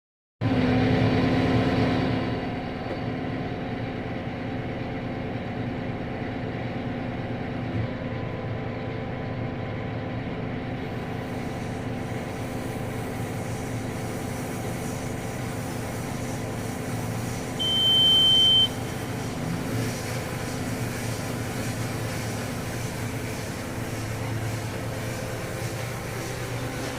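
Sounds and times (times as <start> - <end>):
tractor engine running: 0.4 - 26.9
baler working: 11.0 - 26.9
electronic beep: 17.6 - 18.8.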